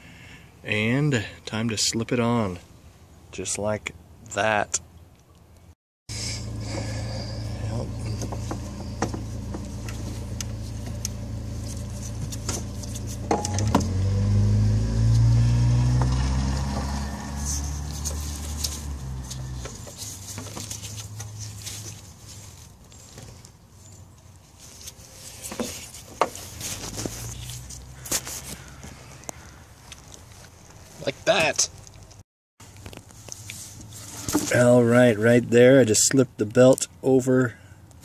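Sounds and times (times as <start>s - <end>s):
vehicle engine running: 6.1s - 22.1s.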